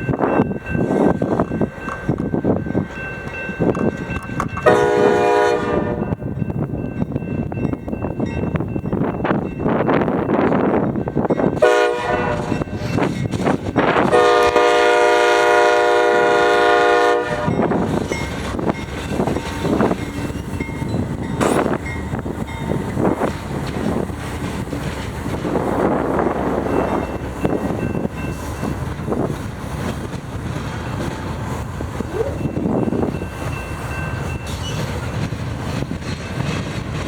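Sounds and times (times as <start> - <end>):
passing train rumble: 0.0 - 37.0
locomotive horn blast: 4.6 - 6.2, 11.6 - 12.7, 14.0 - 17.8.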